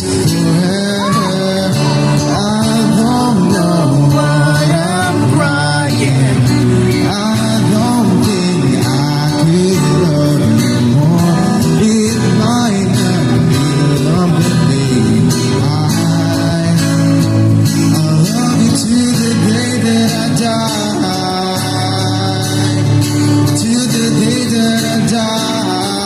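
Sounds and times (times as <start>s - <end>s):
instrumental backing: 0.0s - 26.0s
person singing: 0.2s - 17.1s.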